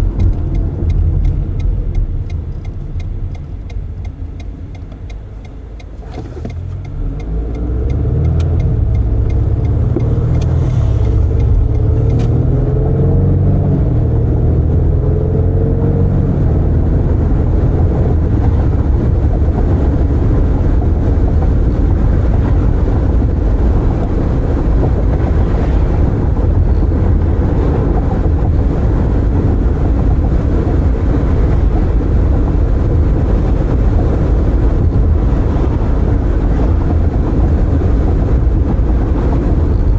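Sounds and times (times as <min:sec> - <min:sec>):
car engine accelerating: 0:00.0 - 0:39.9
tyre and road noise: 0:00.0 - 0:39.9.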